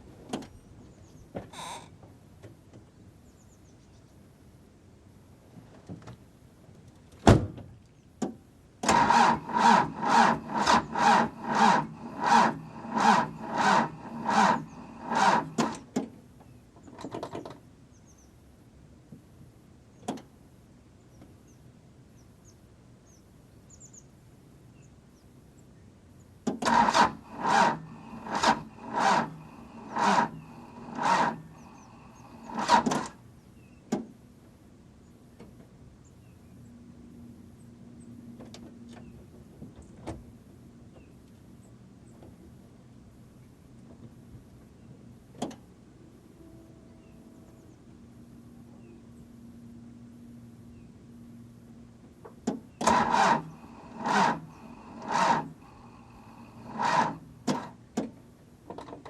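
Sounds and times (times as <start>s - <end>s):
diesel engine cranking slowly: 8.8s - 16.0s, 26.6s - 33.5s, 49.6s - 59.0s.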